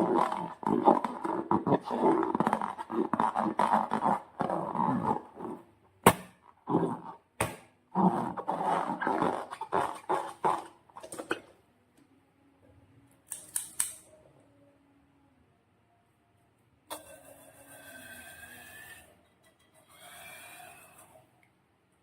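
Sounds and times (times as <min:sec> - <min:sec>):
slime and balloon squelching: 0:00.0 - 0:11.4.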